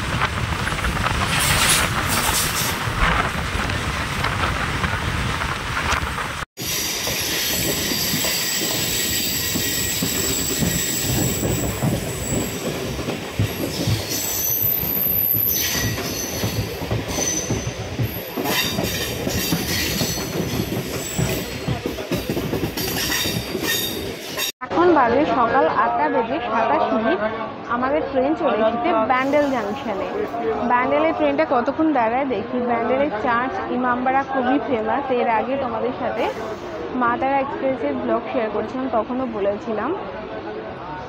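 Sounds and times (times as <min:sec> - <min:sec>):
electric train wheels rumbling on rails: 0:00.0 - 0:24.5.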